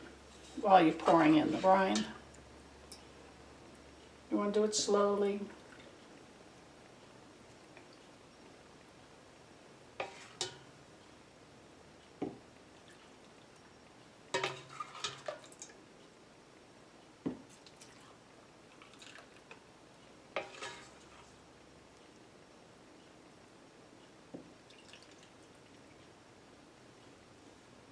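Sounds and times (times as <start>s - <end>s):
brine pouring into jars: 17.6s - 19.6s.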